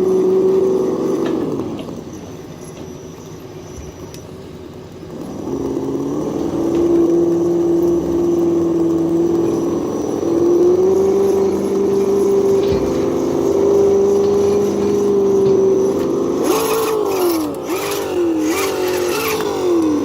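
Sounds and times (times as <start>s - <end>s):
simulated engine sound from speaker: 5.1s - 20.0s.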